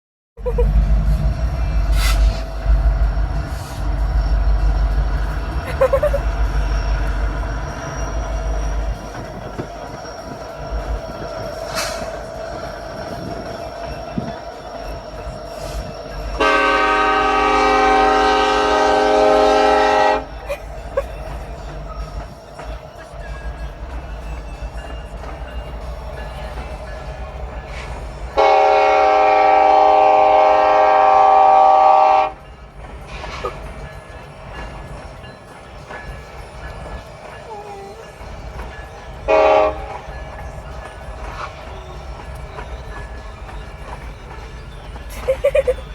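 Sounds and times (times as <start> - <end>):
train rumble: 0.4 - 45.9
train wheels squealing: 0.5 - 45.9
train horn blast: 16.4 - 20.4, 28.3 - 32.4, 39.3 - 40.0.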